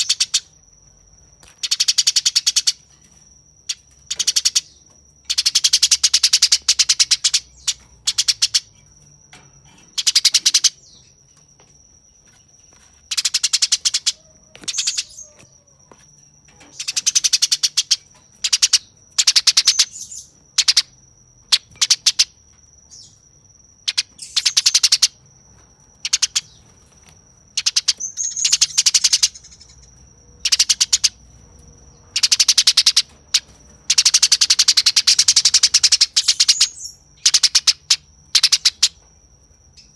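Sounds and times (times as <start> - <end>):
sparrow chattering calls: 0.0 - 0.5, 1.4 - 2.8, 3.7 - 8.8, 9.9 - 11.1, 13.1 - 15.4, 16.7 - 20.9, 21.5 - 22.3, 23.8 - 25.2, 26.0 - 26.7, 27.6 - 31.3, 32.0 - 39.0.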